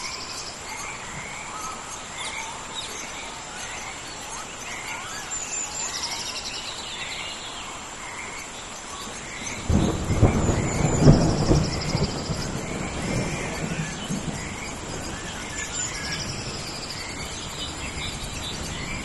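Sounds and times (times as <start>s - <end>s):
birds chirping: 0.0s - 19.0s
insects chirping: 0.0s - 19.0s
steady rain hiss: 0.0s - 19.0s
low thunder rumble: 9.4s - 19.0s.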